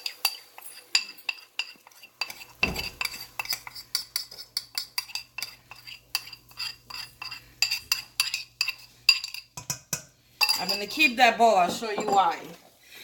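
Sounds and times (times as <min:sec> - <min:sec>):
metal spoon scraping metal bowl: 0:00.0 - 0:12.5.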